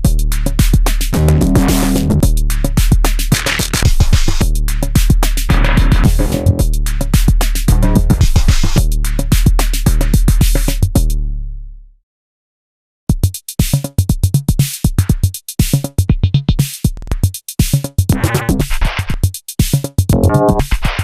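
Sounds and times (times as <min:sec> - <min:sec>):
electronic drum machine beat: 0:00.0 - 0:11.2, 0:13.1 - 0:21.0
pitched electronic tones: 0:20.1 - 0:20.7.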